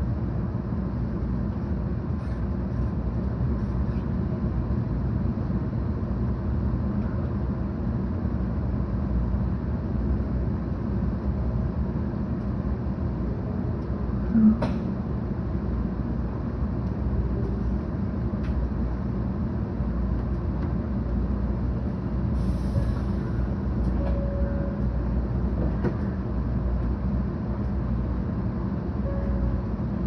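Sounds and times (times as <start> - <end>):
train cabin rumble: 0.0 - 30.0.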